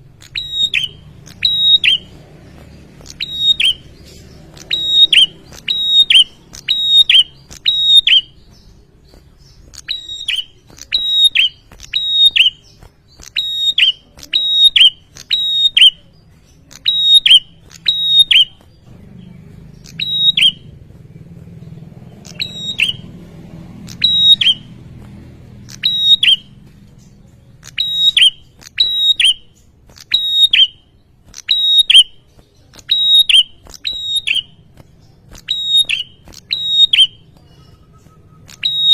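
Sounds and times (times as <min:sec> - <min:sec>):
faint low hum: 0:00.0 - 0:30.2
bird singing sharp falling notes: 0:00.1 - 0:23.2, 0:23.8 - 0:25.0.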